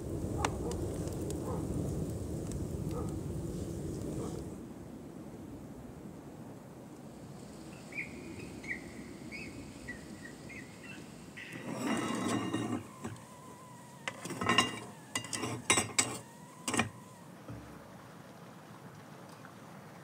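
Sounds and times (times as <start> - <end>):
cast iron stove lids clinking: 11.6 - 13.2, 14.1 - 17.0.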